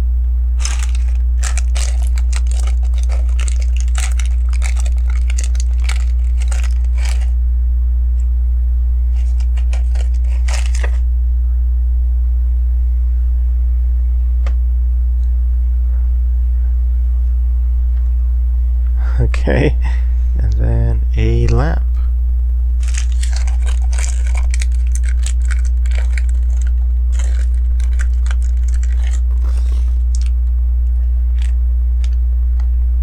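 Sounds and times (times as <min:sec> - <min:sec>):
low electrical hum: 0:00.0 - 0:33.0
plastic pieces clicking: 0:00.6 - 0:07.3.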